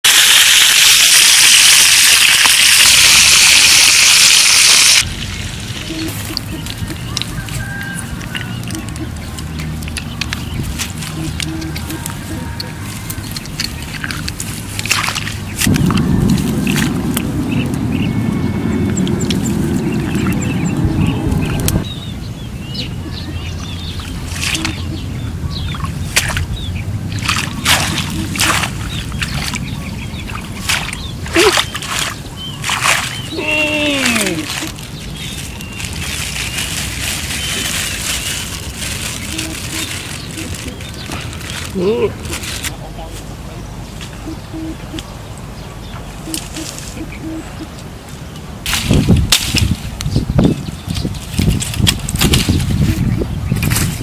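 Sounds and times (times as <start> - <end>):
loud bursts of noise: 0.0 - 5.8
water splashing: 0.0 - 21.9, 23.3 - 42.7
steady low rumble: 5.0 - 31.3
small birds chirping: 5.3 - 49.1, 50.0 - 54.0
bird hooting: 11.1 - 13.0, 39.2 - 41.0, 44.2 - 45.1, 46.2 - 47.8.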